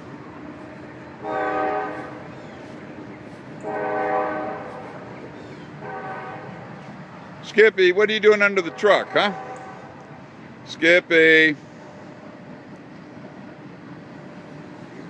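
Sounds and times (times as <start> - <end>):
train horn blasts: 1.2 - 2.3, 3.4 - 6.9, 8.4 - 10.1.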